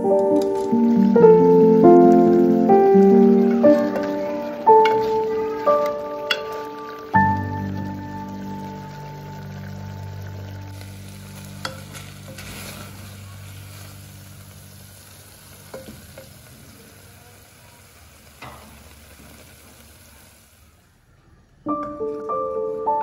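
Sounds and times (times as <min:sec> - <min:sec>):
piano music: 0:00.0 - 0:16.4, 0:21.7 - 0:23.0
beef sizzling in a pot: 0:00.0 - 0:20.8.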